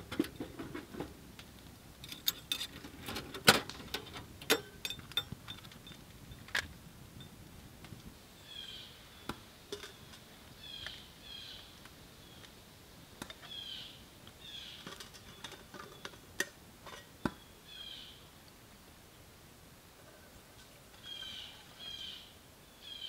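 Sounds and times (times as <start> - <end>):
cookware clicking and knocking: 4.5 - 5.6
bird chirping: 8.3 - 12.5, 13.4 - 16.2, 17.2 - 18.3, 21.0 - 23.0.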